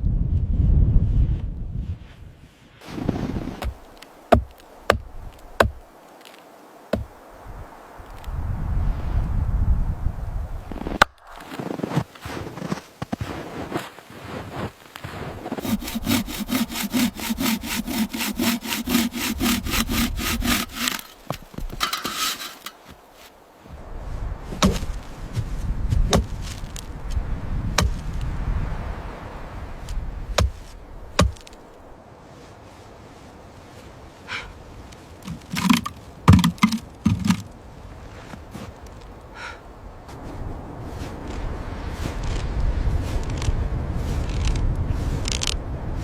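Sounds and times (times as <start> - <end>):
hand saw sawing wood: 3.5 - 5.0, 5.6 - 5.8, 6.9 - 7.1, 15.5 - 22.9, 30.4 - 30.6, 31.2 - 31.4, 35.3 - 37.4
sharp knocks: 35.3 - 37.4.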